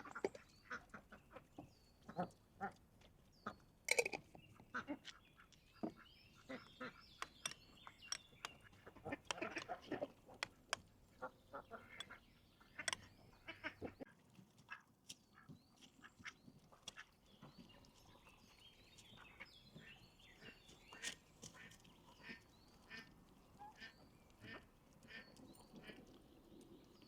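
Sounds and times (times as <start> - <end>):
ducks quacking: 8.5 - 14.1, 19.2 - 26.1.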